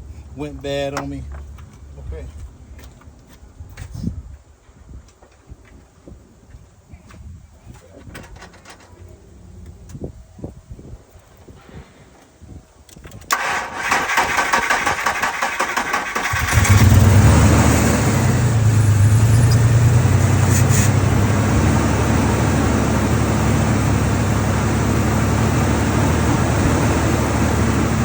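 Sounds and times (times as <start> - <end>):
engine cranking on starter: 13.3 - 28.0
engine revving and idling: 14.0 - 28.0.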